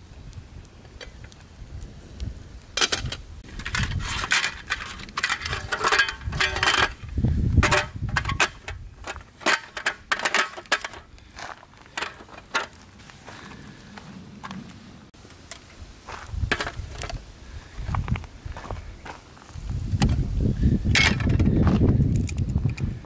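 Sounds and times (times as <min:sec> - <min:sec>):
metal cookware clattering: 0:02.8 - 0:07.0, 0:07.6 - 0:11.0.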